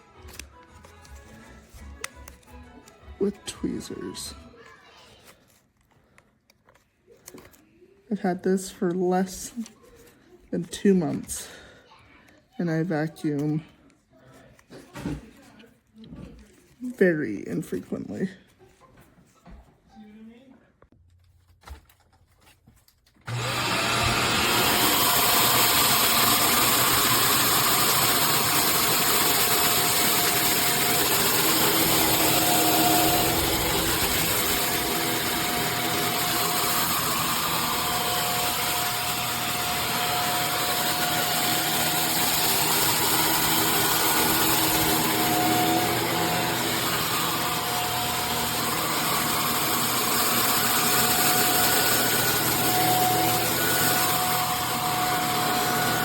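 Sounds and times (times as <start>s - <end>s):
vacuum cleaner running: 0.0s - 4.4s, 10.6s - 11.8s, 23.3s - 56.0s.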